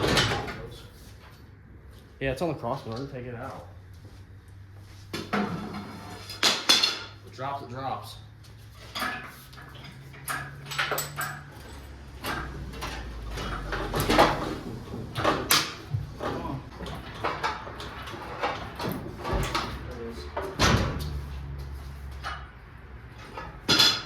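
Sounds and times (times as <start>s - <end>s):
metal clanks and creaks: 0.0s - 1.4s, 8.4s - 24.0s.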